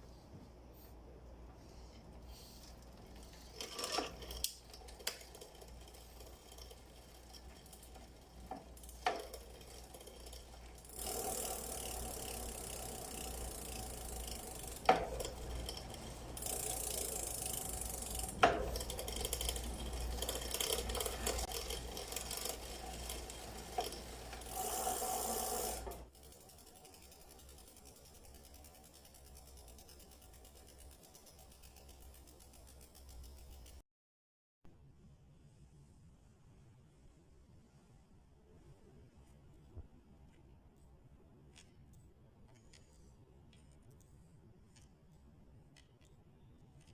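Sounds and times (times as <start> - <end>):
bike chain ratcheting whirr: 2.2 - 33.8
sharp drivetrain clicks: 2.6 - 33.8.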